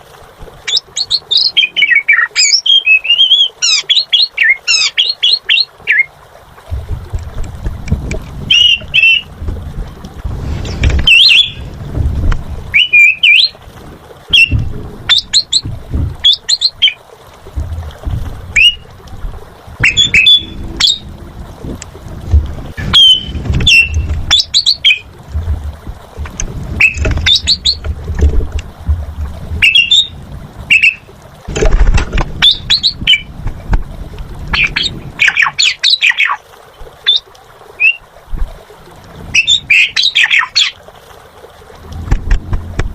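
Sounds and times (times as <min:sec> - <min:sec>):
starling singing: 0:08.5 - 0:09.3, 0:11.1 - 0:11.6, 0:12.7 - 0:13.6, 0:14.3 - 0:17.0, 0:18.6 - 0:18.9, 0:19.8 - 0:21.1, 0:22.9 - 0:25.1, 0:29.6 - 0:31.1, 0:32.4 - 0:33.3, 0:34.5 - 0:36.4, 0:39.4 - 0:40.8.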